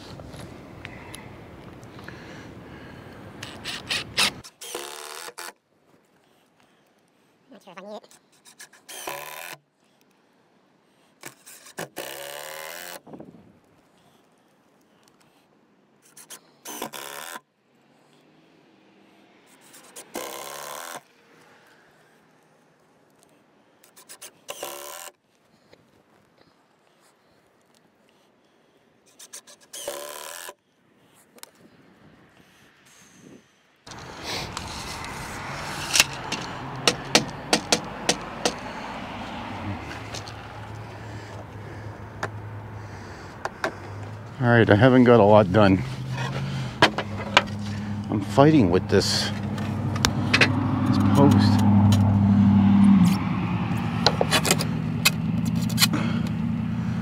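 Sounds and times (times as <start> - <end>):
hammer knocking on wood: 36.8 - 38.6.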